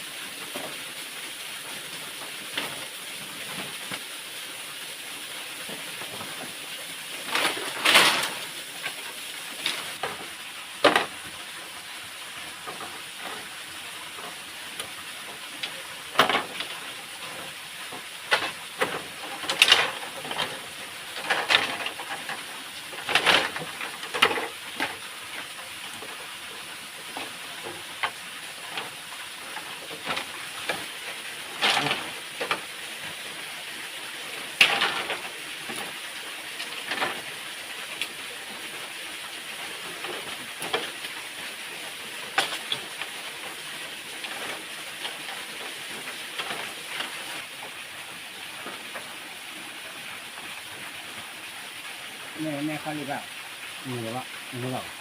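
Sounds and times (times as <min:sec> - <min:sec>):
waterfall hiss: 0:00.0 - 0:55.0
sharp cracks and rustles: 0:05.7 - 0:11.2, 0:14.2 - 0:33.4, 0:34.2 - 0:38.7.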